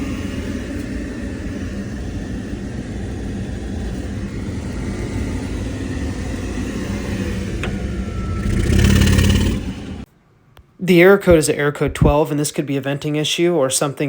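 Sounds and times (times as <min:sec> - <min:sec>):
water heater burner rumbling: 0:00.0 - 0:10.1.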